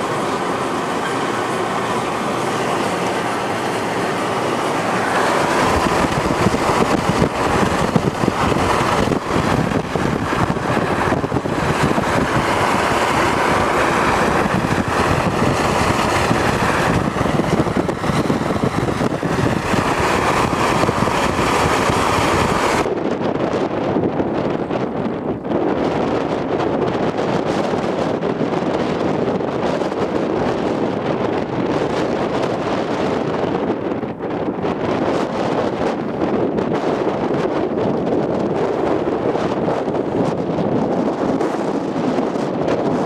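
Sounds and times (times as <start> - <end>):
car driving: 0.0 - 23.0.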